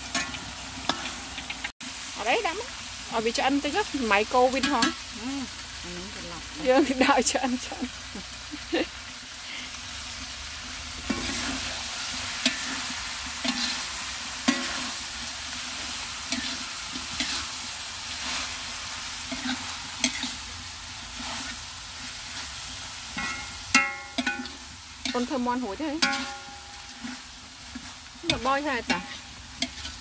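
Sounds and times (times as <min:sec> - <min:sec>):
food sizzling in hot oil: 0:00.0 - 0:30.0
utensil scraping and knocking pan: 0:23.1 - 0:30.0.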